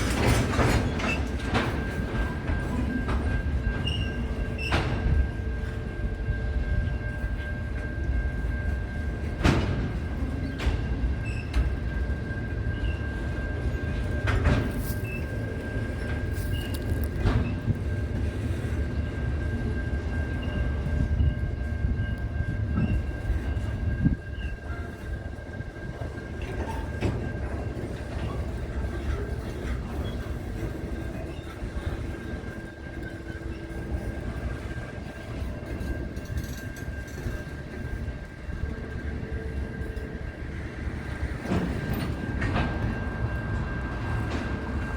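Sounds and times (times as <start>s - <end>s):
wheels clicking on track: 0.0s - 5.2s
train rumbling on track: 0.0s - 44.9s.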